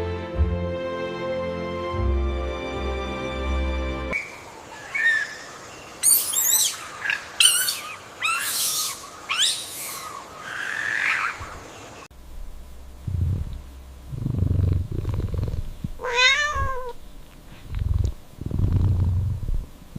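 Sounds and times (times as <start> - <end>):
bird chirping: 4.2 - 12.1.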